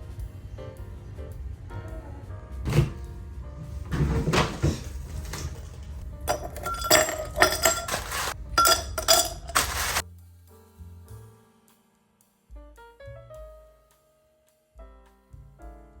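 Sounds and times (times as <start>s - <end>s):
utensils scraping and clinking cookware: 3.9s - 10.0s
sharp ringing clinks: 6.3s - 10.0s.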